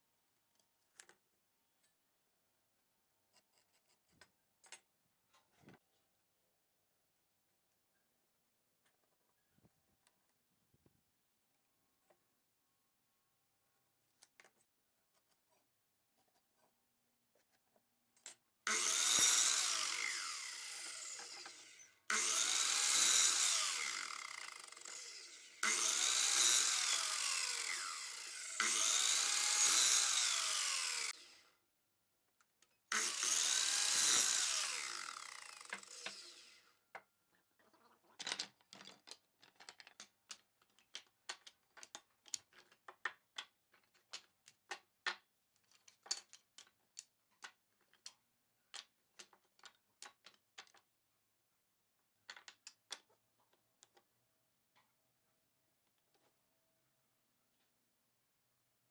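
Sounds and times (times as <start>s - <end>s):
power tool working wood: 18.7s - 31.4s, 32.9s - 36.6s.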